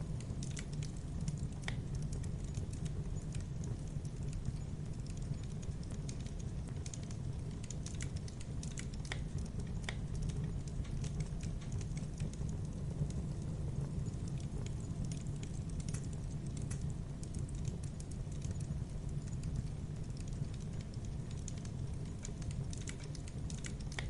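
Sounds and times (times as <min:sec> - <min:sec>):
campfire crackling: 0:00.0 - 0:24.0
low fire rumble: 0:00.0 - 0:24.0.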